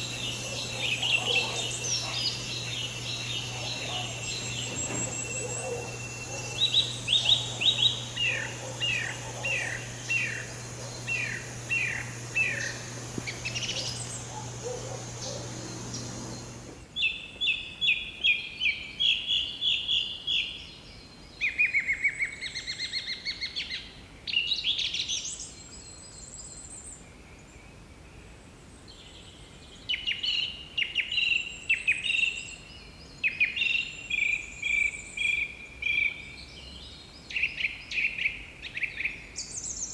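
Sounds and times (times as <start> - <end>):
background hum: 0.0 - 16.8
bird calls: 0.0 - 16.8.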